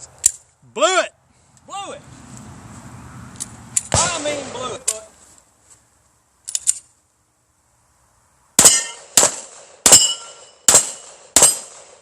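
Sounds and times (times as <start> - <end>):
gunshots: 3.9 - 4.9, 8.6 - 12.0
metallic ring of steel target: 8.6 - 11.8.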